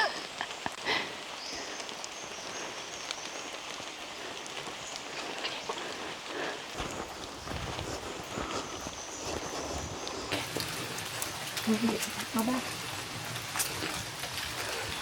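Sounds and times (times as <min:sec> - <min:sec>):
water drips ticking: 0:00.0 - 0:08.6, 0:09.3 - 0:15.0
rain falling on foliage: 0:00.0 - 0:15.0.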